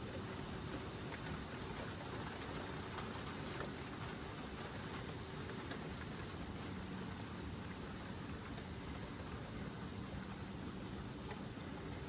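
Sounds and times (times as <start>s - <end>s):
single raindrop ticks: 0.0s - 12.0s
steady rain hiss: 0.0s - 12.0s.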